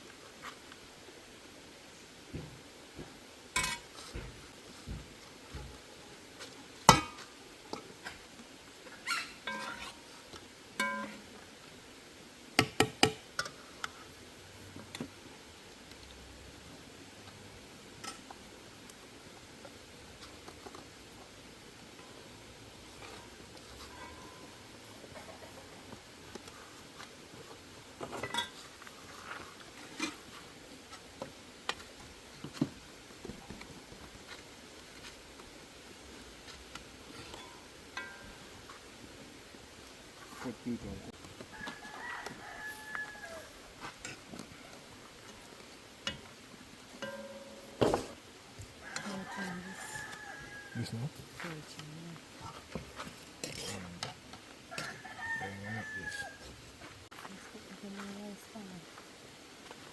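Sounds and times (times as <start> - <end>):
pots and dishes clinking: 3.6 - 3.9, 6.9 - 7.3, 9.4 - 10.1, 10.8 - 11.3, 28.1 - 28.6, 37.2 - 38.4, 47.0 - 48.1.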